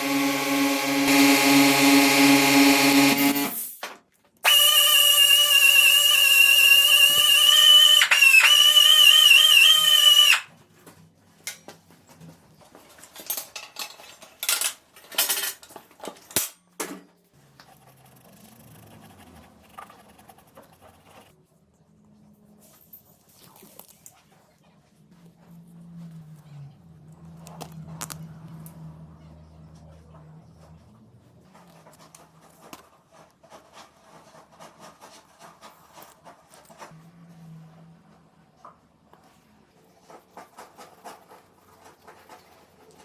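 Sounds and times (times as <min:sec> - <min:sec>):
power tool whining: 0:00.0 - 0:03.6, 0:04.4 - 0:10.5.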